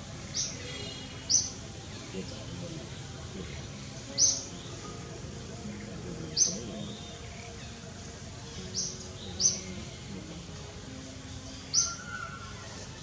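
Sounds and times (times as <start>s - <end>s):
outdoor background hiss: 0.0s - 13.0s
high-pitched bird chirps: 11.6s - 13.0s.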